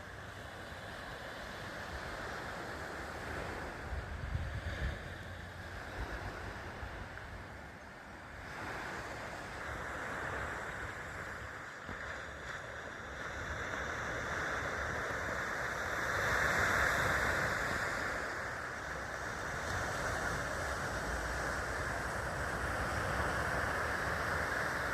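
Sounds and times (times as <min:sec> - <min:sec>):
sea waves washing onto beach: 0:00.0 - 0:24.9.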